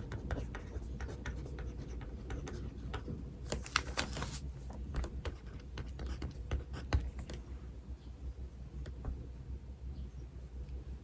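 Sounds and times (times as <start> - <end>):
pen scratching on paper: 0.0 - 3.1, 5.2 - 7.3
steady low hum: 0.0 - 11.0.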